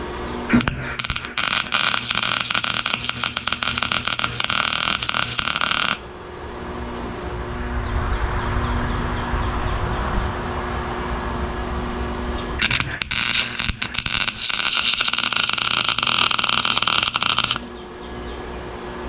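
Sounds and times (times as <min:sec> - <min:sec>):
steady hum: 0:00.0 - 0:07.6, 0:11.9 - 0:18.6
welding arc crackling: 0:00.5 - 0:06.1, 0:12.6 - 0:17.8.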